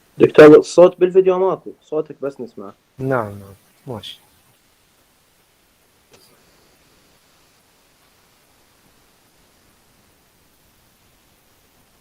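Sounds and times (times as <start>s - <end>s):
faint recording hiss: 0.0s - 12.0s.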